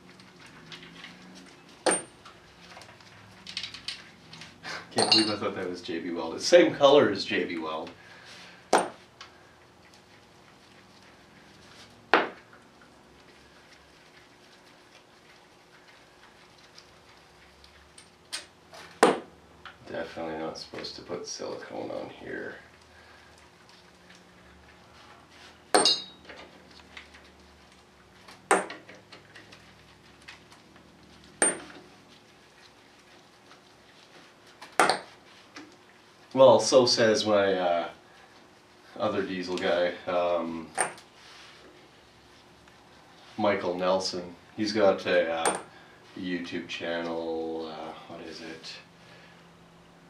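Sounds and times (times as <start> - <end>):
metal striking metal clanks: 5.0 - 5.4, 25.8 - 26.2
sharp metal clinks: 5.0 - 5.4, 25.8 - 26.2.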